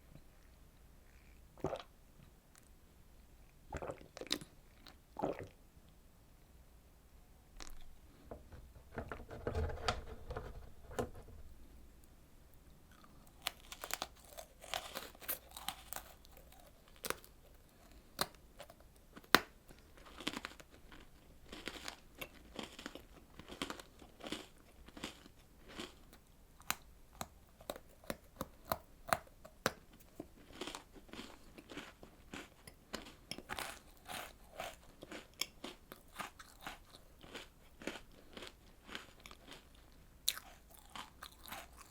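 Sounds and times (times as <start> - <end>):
person chewing crunchy food: 12.9 - 41.9.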